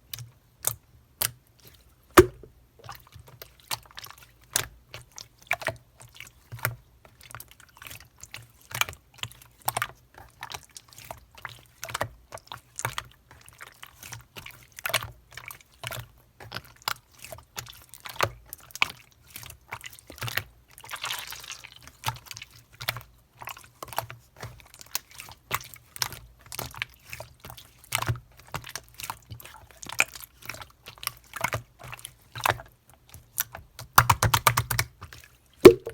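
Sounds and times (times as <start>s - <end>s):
slime squelching and popping: 2.2s - 2.5s, 20.9s - 21.9s, 35.6s - 35.9s.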